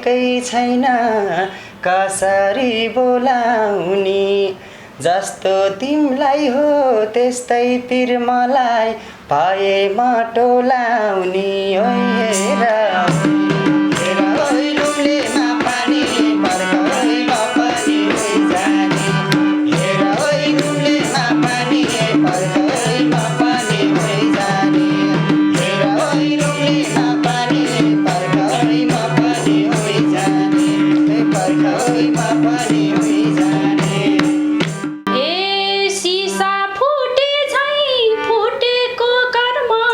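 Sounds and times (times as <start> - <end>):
fast hand-drum rhythm: 13.1 - 35.0.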